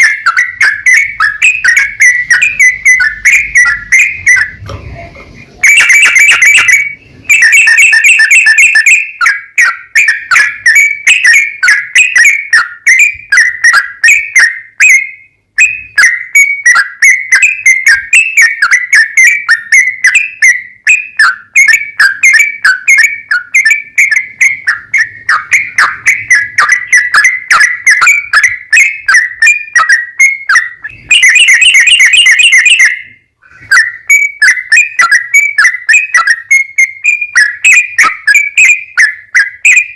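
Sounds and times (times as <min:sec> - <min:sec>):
bird singing rapid whistled notes: 0:00.0 - 0:39.9.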